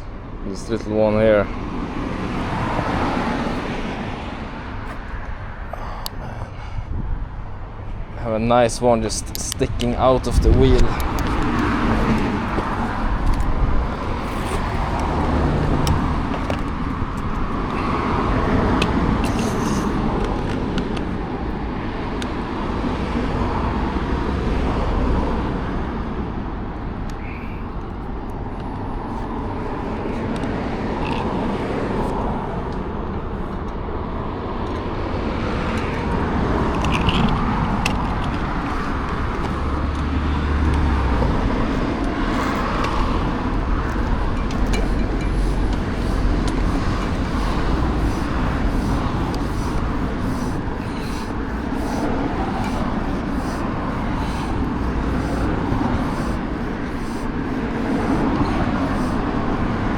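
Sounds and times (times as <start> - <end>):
cars passing: 0.0 - 59.9
steady traffic rumble: 0.0 - 59.9.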